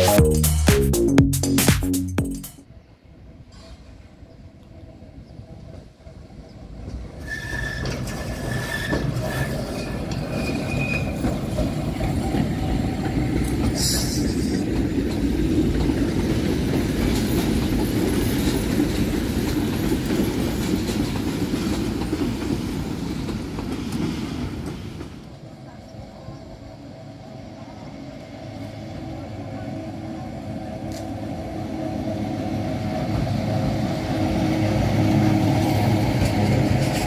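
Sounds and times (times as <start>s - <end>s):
train wheels rumbling on rails: 5.4s - 37.0s
wheel squeals: 7.2s - 11.3s.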